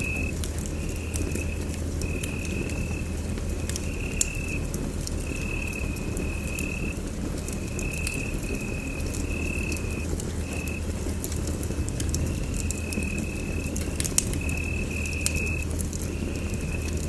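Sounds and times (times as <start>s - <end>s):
thin high whistle-like tone: 0.0s - 0.3s
fire crackles and pops: 0.0s - 17.0s
fireplace fire rumbling: 0.0s - 17.0s.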